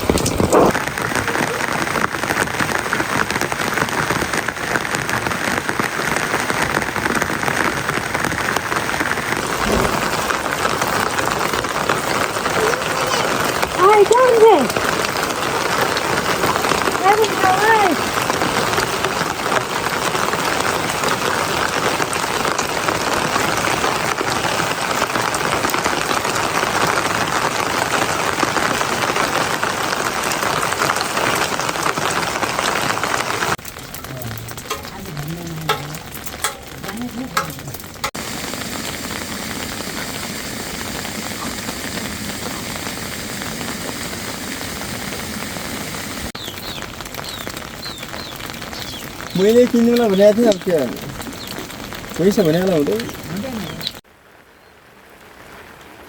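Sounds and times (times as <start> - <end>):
heavy rain falling: 0.0 - 56.0
scattered clicks and taps: 33.6 - 38.2.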